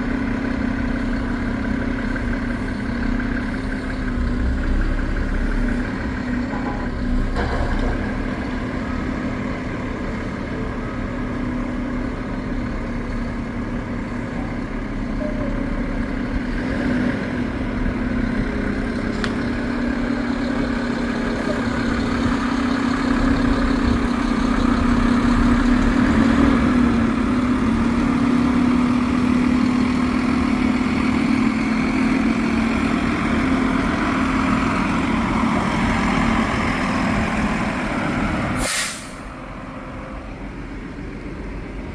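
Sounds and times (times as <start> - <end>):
diesel truck engine running: 0.0 - 41.9
short sharp air hiss: 38.6 - 39.3.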